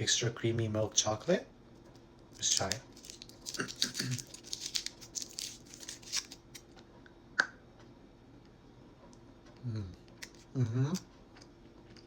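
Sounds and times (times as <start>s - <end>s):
foil wrapper crinkling and tearing: 2.4s - 6.7s.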